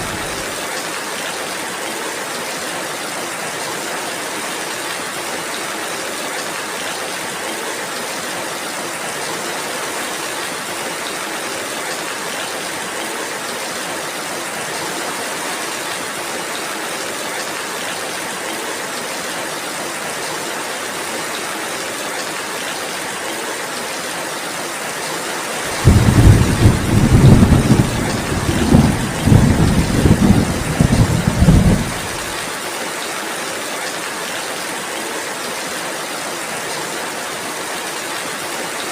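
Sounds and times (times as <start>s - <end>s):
rolling thunder: 0.0s - 0.4s, 25.7s - 32.4s
steady rainfall: 0.0s - 38.9s.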